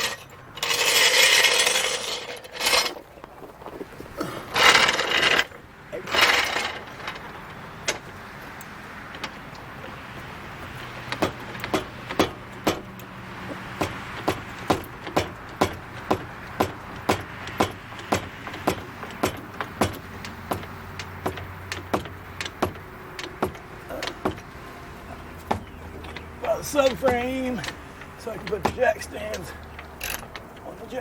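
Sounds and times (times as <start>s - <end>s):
metal floor jack scraping and rattling: 0.0s - 31.0s
sharp metallic clicks: 4.5s - 31.0s.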